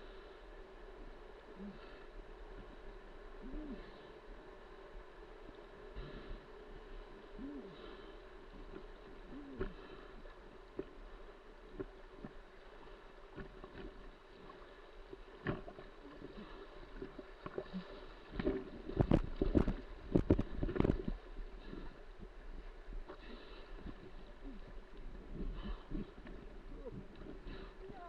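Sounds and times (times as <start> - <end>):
splashes and knocks: 15.4 - 15.8.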